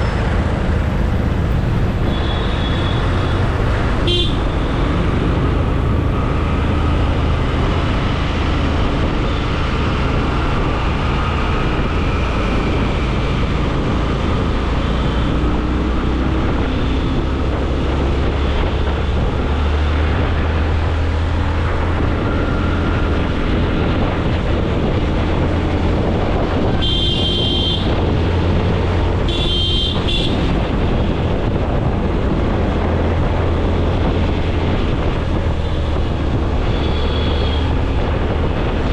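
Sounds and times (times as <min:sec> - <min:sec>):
road traffic rumble: 0:00.0 - 0:38.9
vehicle horn toots: 0:02.0 - 0:04.8, 0:26.7 - 0:28.0, 0:29.3 - 0:30.6, 0:36.7 - 0:37.8.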